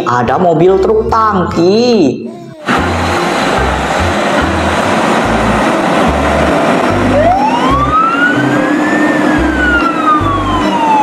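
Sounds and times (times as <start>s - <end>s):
loud noisy rumble: 2.6s - 11.0s
siren sweeping up and down: 2.7s - 11.0s.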